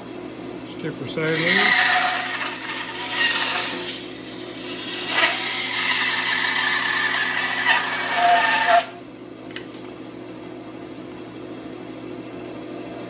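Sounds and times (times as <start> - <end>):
bandsaw motor humming: 0.7 - 9.0
bandsaw cutting wood: 1.2 - 9.0.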